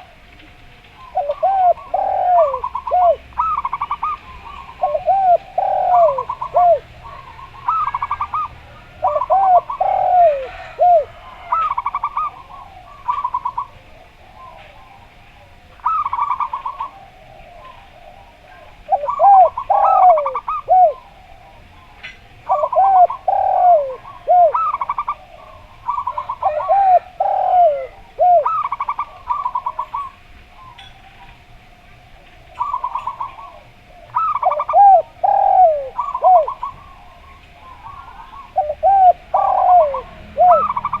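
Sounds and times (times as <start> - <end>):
doves cooing: 0.0 - 41.0
stuttering dove trills: 32.6 - 41.0.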